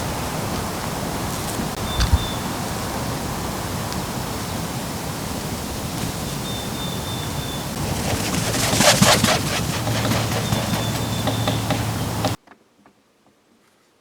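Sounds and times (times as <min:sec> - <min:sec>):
crackling rustle: 0:00.0 - 0:12.4
steady rushing hiss: 0:00.0 - 0:12.4
high whistled bird note: 0:01.7 - 0:02.8.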